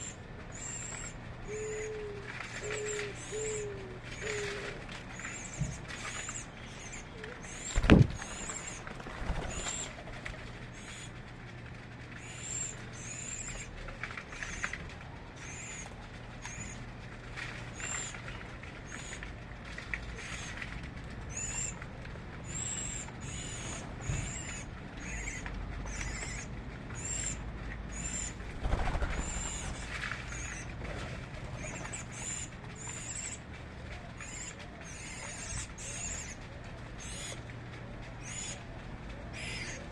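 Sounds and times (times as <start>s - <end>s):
birds chirping: 34.1s - 36.4s, 38.2s - 39.9s.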